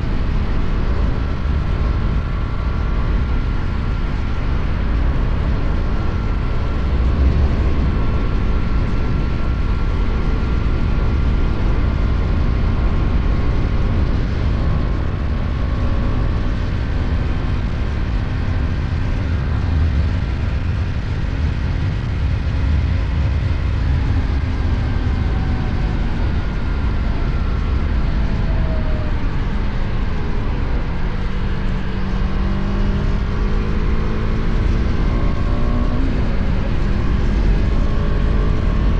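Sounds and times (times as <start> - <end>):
higher engine-like tones: 0.0 - 38.9
motorcycle engine running: 0.0 - 38.9
wind and road rush: 0.0 - 38.9.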